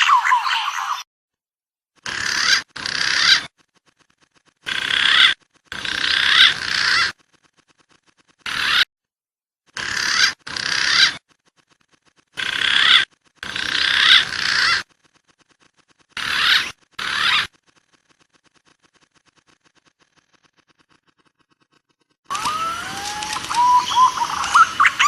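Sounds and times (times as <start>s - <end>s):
pigeon lure whistled calls: 22.3s - 25.0s.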